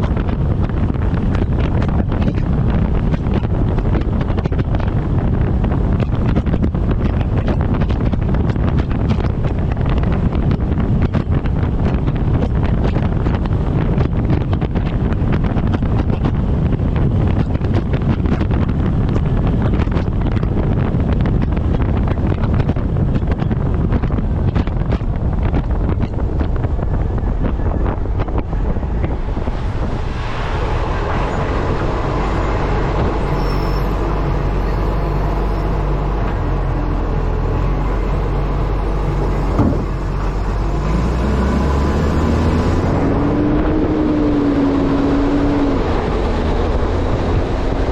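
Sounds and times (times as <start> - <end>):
truck engine drone: 0.0 - 15.7, 16.4 - 47.9
road noise: 0.0 - 47.9
wind buffeting camera: 0.0 - 47.9
rising whine: 27.0 - 47.9.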